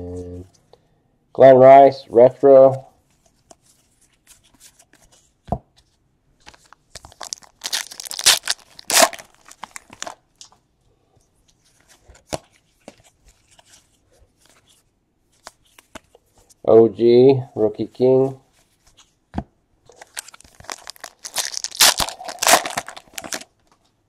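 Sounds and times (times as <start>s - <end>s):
foil wrapper tearing and crinkling: 7.0s - 10.2s, 20.0s - 23.6s.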